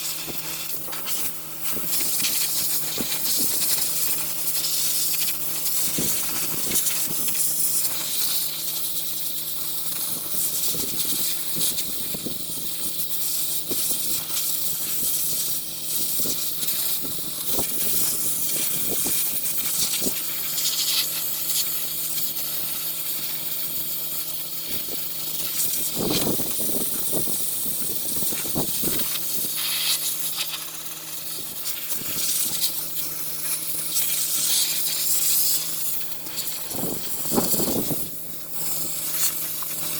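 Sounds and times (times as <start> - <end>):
compressed-air tool hissing: 0.0 - 39.9
steady low hum: 13.7 - 39.9.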